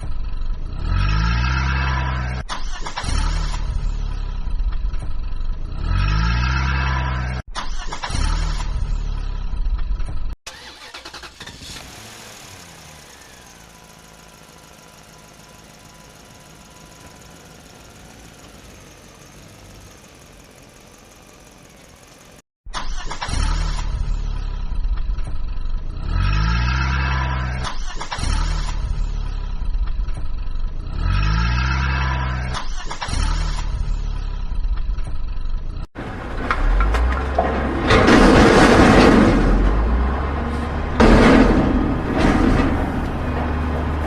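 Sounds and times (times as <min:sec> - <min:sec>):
vehicle engine revving: 0:00.0 - 0:05.0, 0:05.6 - 0:09.5, 0:10.6 - 0:22.4, 0:23.3 - 0:34.6
steady engine drone: 0:11.8 - 0:22.4.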